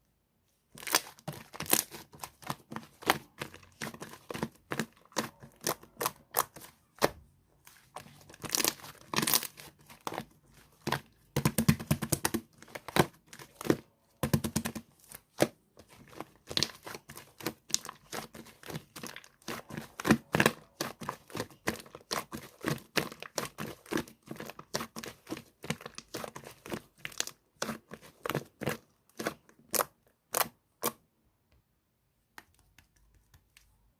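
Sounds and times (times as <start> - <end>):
slime clicking and crackling: 0.8 - 7.1, 8.0 - 31.0.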